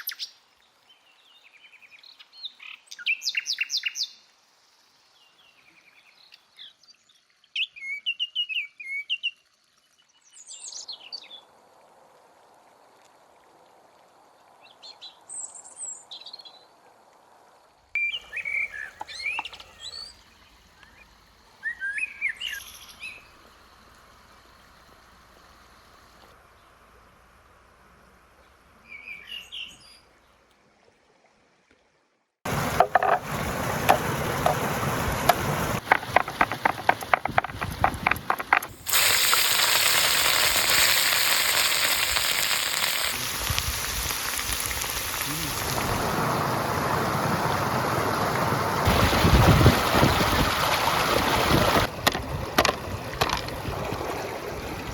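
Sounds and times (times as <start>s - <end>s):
birds chirping: 18.0s - 23.4s
fire crackles and pops: 32.5s - 46.1s
food sizzling over a fire: 32.5s - 47.4s.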